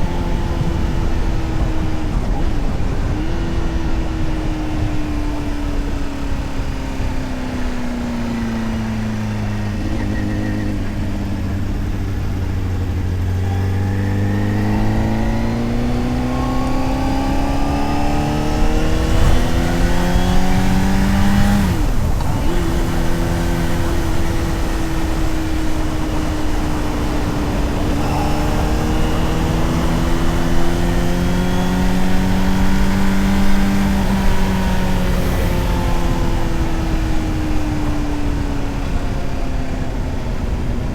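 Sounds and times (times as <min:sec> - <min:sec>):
motorcycle engine and exhaust: 0:00.0 - 0:40.9
wind rush: 0:14.1 - 0:40.9.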